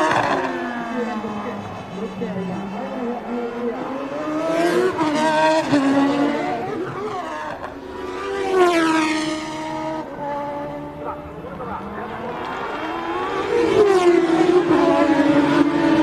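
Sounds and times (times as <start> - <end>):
racing cars passing by: 0.0 - 16.0.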